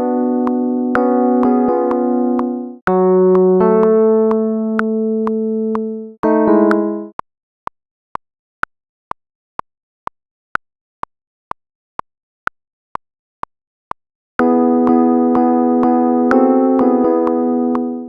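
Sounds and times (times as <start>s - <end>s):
keyboard chord: 0.0s - 7.2s, 14.4s - 18.0s
metronome ticking: 0.0s - 7.2s, 14.4s - 18.0s.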